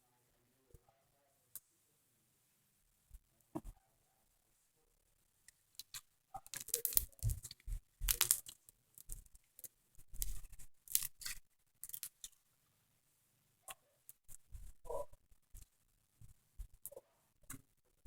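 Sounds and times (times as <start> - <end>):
slime crackling and squelching: 5.8 - 9.3.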